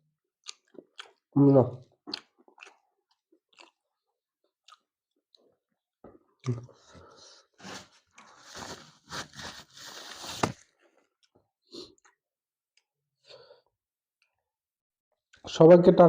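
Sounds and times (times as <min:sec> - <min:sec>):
chewing: 0:00.4 - 0:07.0.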